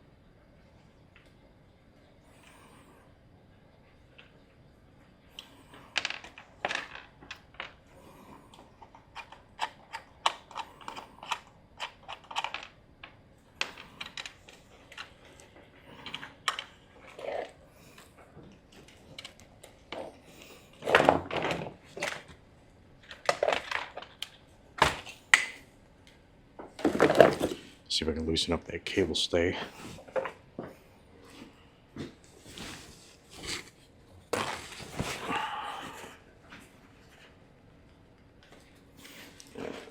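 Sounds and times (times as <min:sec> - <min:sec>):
plastic clattering: 0:06.0 - 0:07.8, 0:20.8 - 0:22.4, 0:23.0 - 0:25.6, 0:26.6 - 0:27.7
plastic clicks and rattles: 0:08.8 - 0:17.4.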